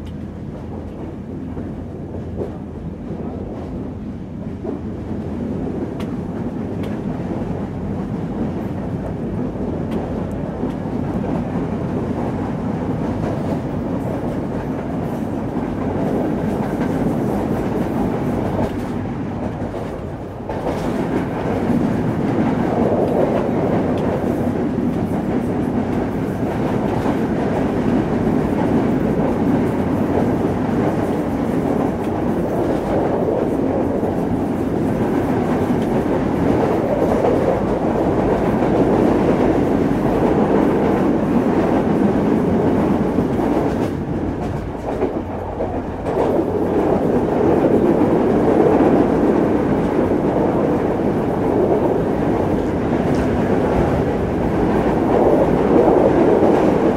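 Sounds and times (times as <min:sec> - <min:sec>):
train wheels rumbling on rail: 0:00.0 - 0:56.9.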